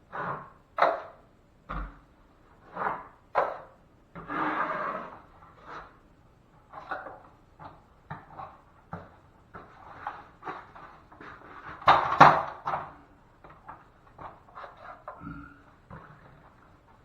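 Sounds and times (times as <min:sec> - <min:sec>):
drywall knife scraping compound: 0:00.0 - 0:01.2, 0:02.6 - 0:06.1, 0:06.7 - 0:12.9, 0:13.7 - 0:15.2.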